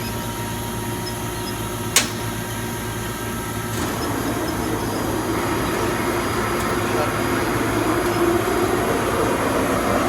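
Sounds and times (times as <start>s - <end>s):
laser cutter machine hum: 0.0s - 10.0s
sharp click: 1.9s - 2.3s.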